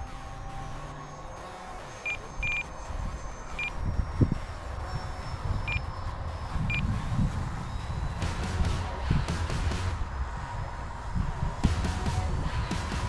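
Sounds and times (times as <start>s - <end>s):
low rumble: 1.6s - 13.0s
short electronic beeps: 2.0s - 2.7s, 5.6s - 5.8s.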